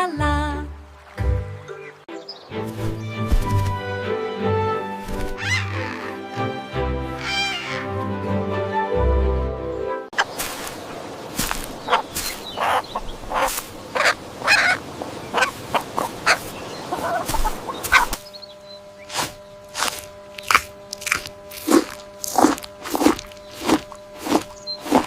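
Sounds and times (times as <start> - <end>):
poultry calling: 5.1 - 6.5, 7.1 - 8.0, 11.7 - 18.8
faint hum: 10.2 - 25.0.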